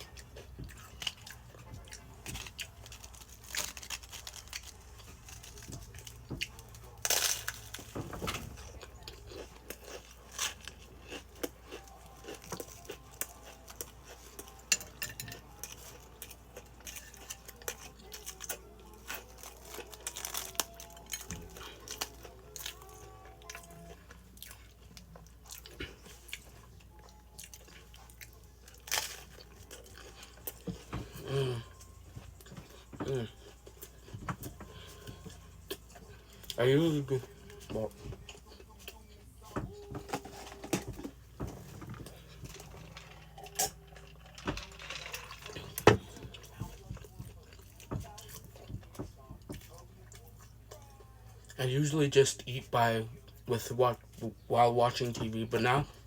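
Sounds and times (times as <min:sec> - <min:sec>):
person crunching potato chips: 0:00.0 - 0:08.0, 0:08.6 - 0:37.5, 0:42.0 - 0:48.7.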